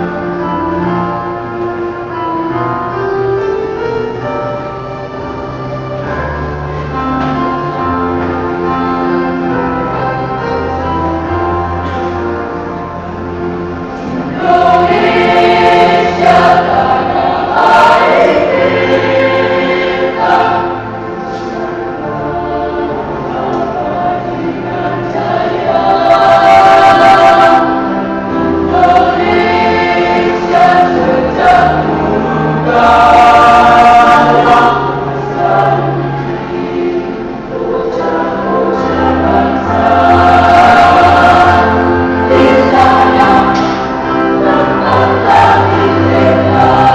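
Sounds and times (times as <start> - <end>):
choir singing in parts: 0.0 - 46.9.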